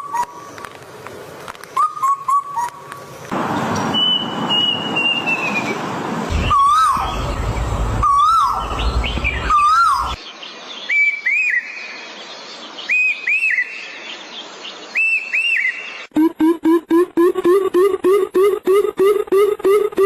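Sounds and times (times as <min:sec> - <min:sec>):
bird whistled calls: 0:01.8 - 0:02.8, 0:03.9 - 0:07.3, 0:08.0 - 0:10.2, 0:10.9 - 0:11.9, 0:12.8 - 0:13.8, 0:14.9 - 0:16.0
low rumble: 0:06.3 - 0:09.6.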